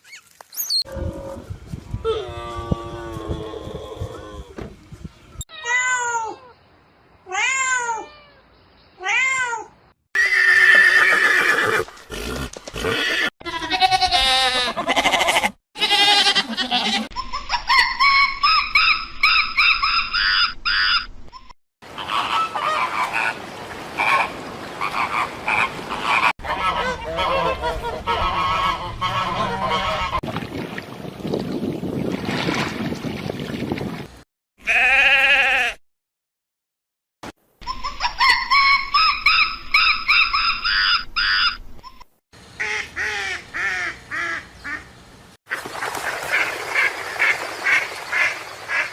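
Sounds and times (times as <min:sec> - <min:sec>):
animal calls and noise: 0:16.4 - 0:30.2, 0:37.6 - 0:43.3.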